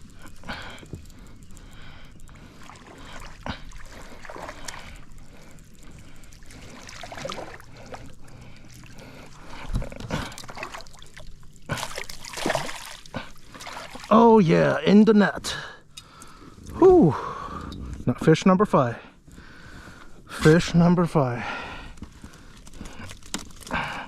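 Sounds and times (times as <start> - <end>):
water splashing: 0.0 - 14.5.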